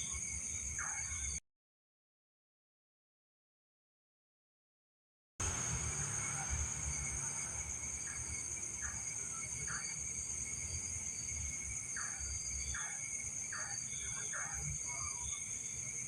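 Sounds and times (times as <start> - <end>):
crickets chirring: 0.0 - 1.4, 5.4 - 16.0.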